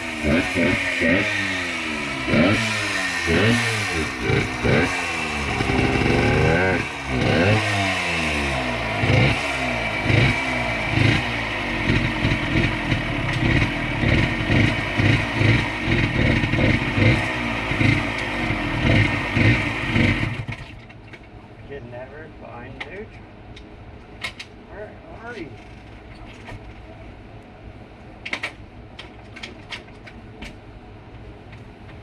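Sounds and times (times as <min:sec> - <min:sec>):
motorcycle engine revving: 0:00.0 - 0:20.8.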